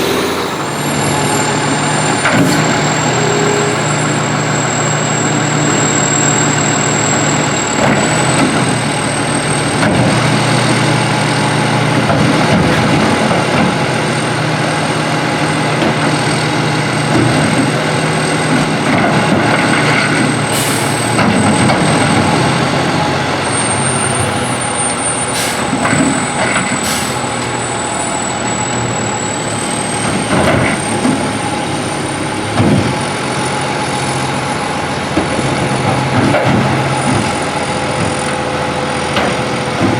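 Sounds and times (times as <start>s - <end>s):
garbage truck engine whining: 0.0s - 39.9s.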